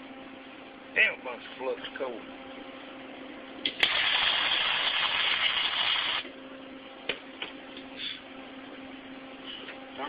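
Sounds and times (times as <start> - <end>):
welder arc crackling: 3.7 - 6.3.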